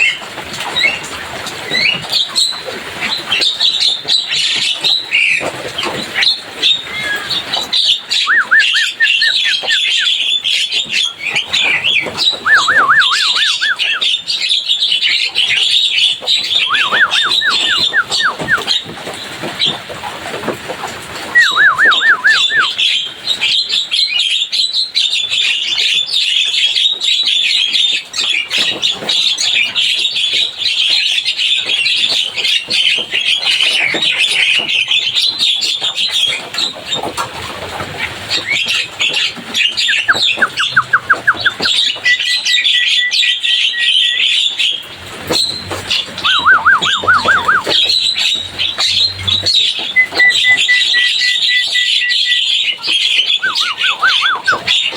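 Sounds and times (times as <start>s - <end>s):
held whistle: 8.2s - 10.1s, 12.4s - 14.1s, 16.6s - 18.7s, 21.4s - 22.8s, 46.2s - 48.0s, 49.9s - 52.6s, 53.4s - 54.8s
fast warbling trills: 12.5s - 14.2s, 16.6s - 18.8s, 45.5s - 54.9s
myna chattering: 46.1s - 52.1s, 53.2s - 54.9s.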